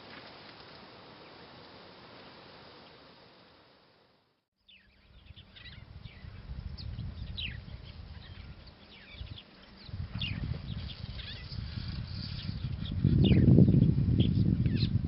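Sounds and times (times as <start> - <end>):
birds chirping: 4.6 - 15.0.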